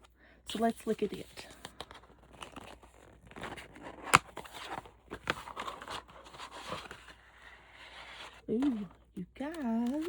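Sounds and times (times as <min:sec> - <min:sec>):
packaging rustling and crinkling: 0:00.5 - 0:10.0.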